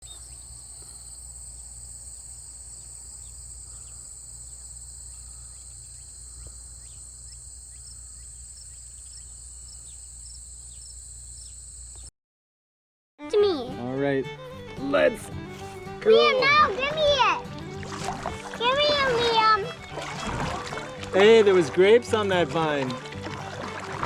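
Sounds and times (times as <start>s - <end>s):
falling bird chirps: 0.0s - 12.1s
high-pitched insect chorus: 0.0s - 12.1s.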